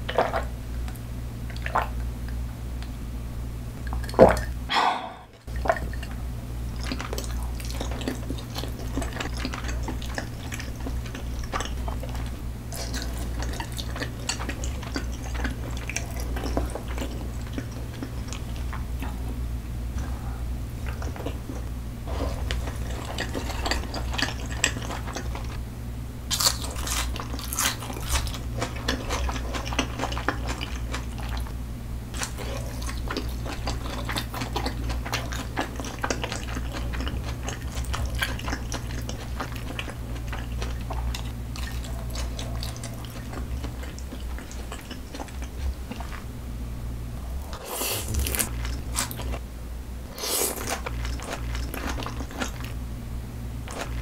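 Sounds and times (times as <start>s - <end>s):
steady low hum: 0.0s - 54.0s
wet chewing and mouth smacks: 6.8s - 19.2s, 22.3s - 25.6s, 26.3s - 31.5s, 32.1s - 46.3s, 50.2s - 52.8s
crunchy bites: 26.3s - 31.0s, 47.6s - 49.4s.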